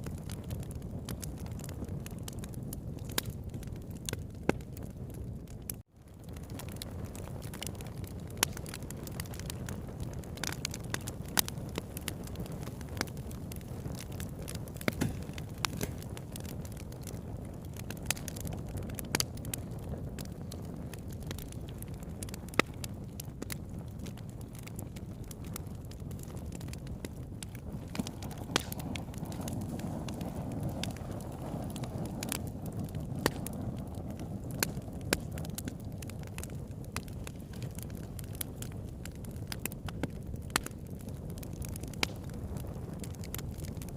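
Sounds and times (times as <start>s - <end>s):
campfire burning: 0.0s - 43.9s
fire low rumble: 0.0s - 43.9s
wood crackling: 0.0s - 43.9s
sharp pops: 27.9s - 29.5s.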